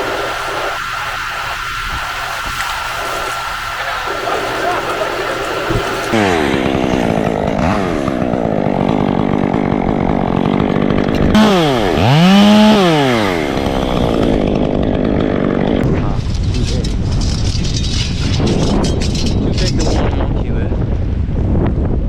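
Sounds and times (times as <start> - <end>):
chainsaw running at high revs: 0.0 - 15.9.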